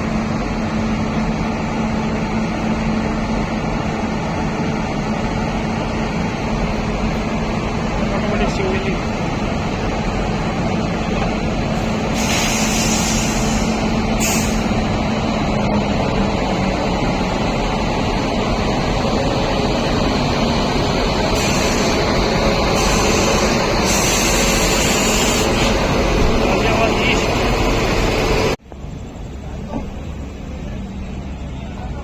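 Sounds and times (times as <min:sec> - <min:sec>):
passenger train rumbling: 0:00.0 - 0:32.0
air-brake hiss: 0:11.8 - 0:14.8, 0:21.4 - 0:22.1, 0:22.7 - 0:25.8.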